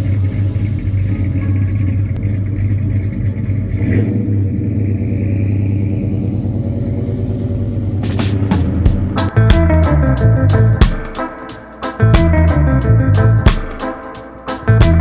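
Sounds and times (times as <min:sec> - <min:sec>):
car engine running and revving: 0:00.0 - 0:09.3.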